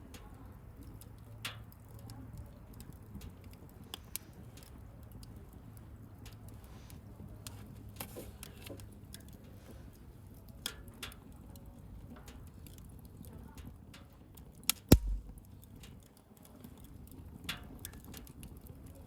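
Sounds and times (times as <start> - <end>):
bonfire crackling: 0.6 - 8.6, 14.5 - 15.7
sharp cracks of burning wood: 14.1 - 16.1.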